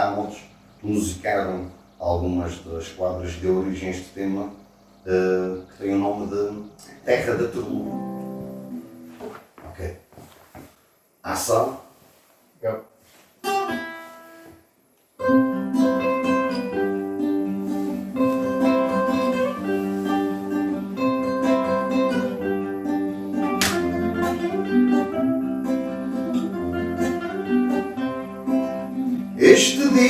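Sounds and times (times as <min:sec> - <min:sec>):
acoustic guitar folk music: 0:07.1 - 0:09.2, 0:13.4 - 0:14.5, 0:15.2 - 0:30.0.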